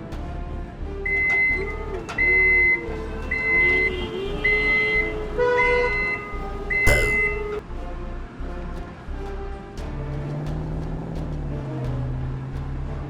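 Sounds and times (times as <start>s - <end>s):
electronic beeps: 6.7s - 7.5s.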